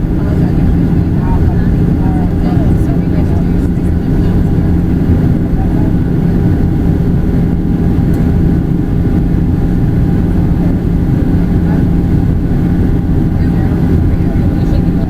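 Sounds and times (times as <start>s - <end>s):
airplane cabin engine rumble: 0.0s - 15.0s
steady low hum: 0.0s - 15.0s.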